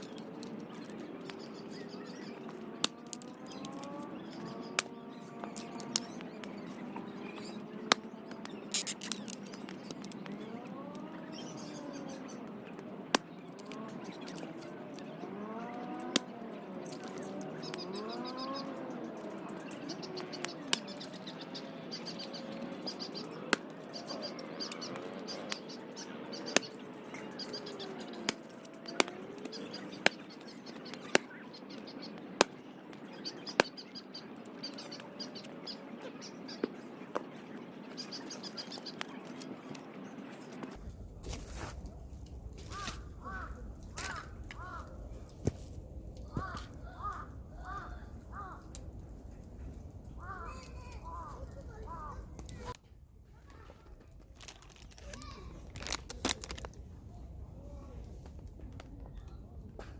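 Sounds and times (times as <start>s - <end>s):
campfire crackling and popping: 0.0s - 10.5s, 11.6s - 15.0s, 15.7s - 37.3s, 40.5s - 52.8s, 53.8s - 57.4s
birds chirping: 0.0s - 52.8s, 53.4s - 59.9s.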